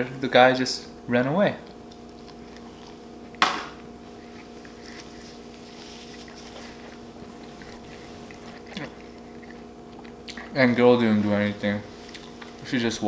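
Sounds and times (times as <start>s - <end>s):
electrical hum: 0.0s - 13.0s
person chewing: 1.6s - 10.7s, 11.9s - 12.6s.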